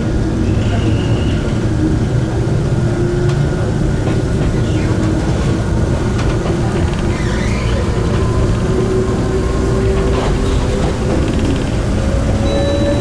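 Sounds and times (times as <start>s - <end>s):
train wheels rumbling on rail: 0.0s - 13.0s
high wheel squeal: 0.4s - 1.6s, 12.4s - 13.0s.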